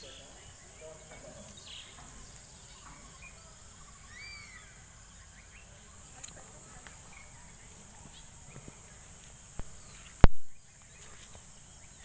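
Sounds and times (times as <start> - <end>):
short bird calls: 0.0 - 6.1
high-pitched hiss: 0.0 - 12.0.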